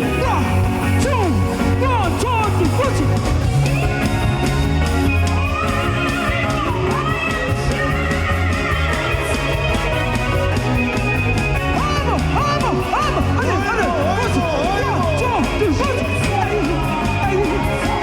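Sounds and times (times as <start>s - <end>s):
bass and drums: 0.0s - 18.0s
electric guitar with bending notes: 0.0s - 18.0s.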